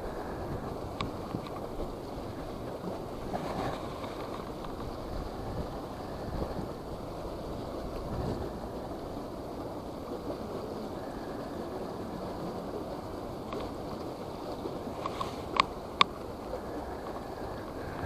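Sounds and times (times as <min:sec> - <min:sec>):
moving water: 0:00.0 - 0:18.0
wind buffeting microphone: 0:00.0 - 0:18.0
light clicks: 0:13.4 - 0:16.2.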